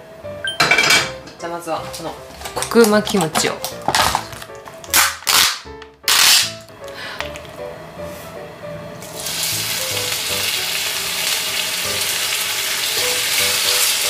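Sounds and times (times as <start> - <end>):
faint background music: 0.0 - 14.0
plastic film tearing: 2.4 - 6.7
food sizzling in oil: 9.0 - 14.0.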